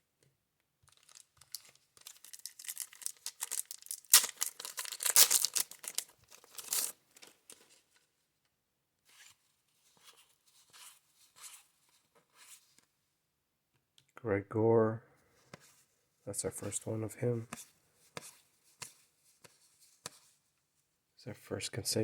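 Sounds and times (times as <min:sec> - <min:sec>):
wax paper wrapper tearing crinkling: 0:00.9 - 0:07.6.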